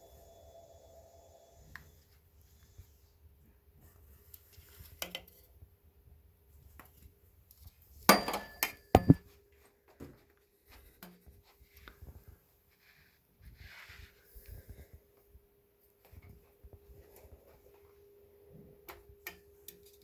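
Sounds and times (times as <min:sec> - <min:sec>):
hard objects clicking and knocking: 0:08.1 - 0:09.2.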